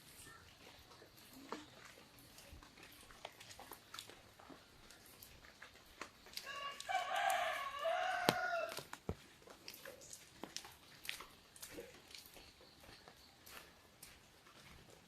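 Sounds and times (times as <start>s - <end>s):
rain tapping on an umbrella: 3.1s - 11.6s
rooster crowing: 6.4s - 8.8s.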